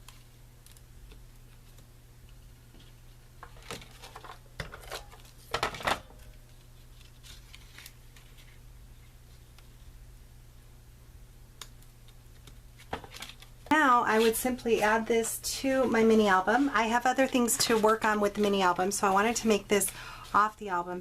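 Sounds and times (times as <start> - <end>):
paper and card rustling: 2.7 - 8.6, 12.3 - 21.0.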